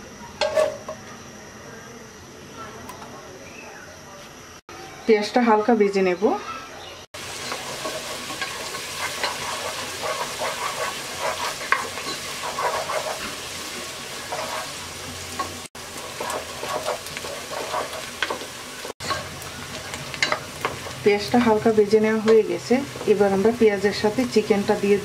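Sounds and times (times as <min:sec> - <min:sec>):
utensil scraping pot: 0:00.4 - 0:00.9, 0:07.3 - 0:19.4
onions sizzling in oil: 0:07.2 - 0:25.0.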